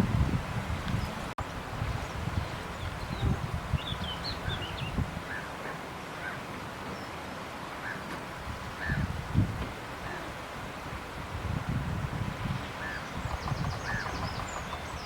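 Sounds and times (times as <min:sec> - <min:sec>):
wind buffeting microphone: 0:00.0 - 0:05.4, 0:08.3 - 0:15.0
small birds chirping: 0:02.0 - 0:05.5, 0:12.6 - 0:15.0.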